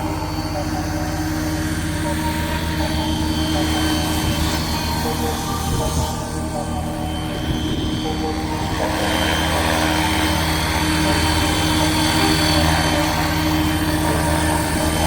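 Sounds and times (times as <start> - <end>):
electric motor whine: 0.0 - 15.0
rc helicopter rotor chop: 0.0 - 15.0.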